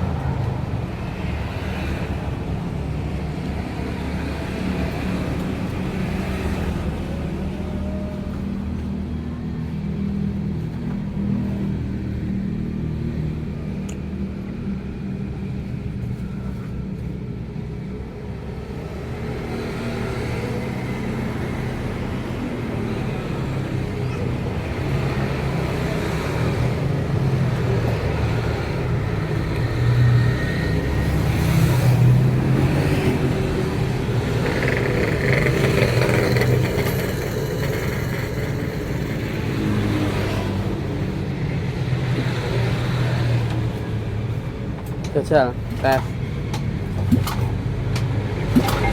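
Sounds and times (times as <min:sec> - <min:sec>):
vehicle engines rumbling: 0:00.0 - 0:48.9.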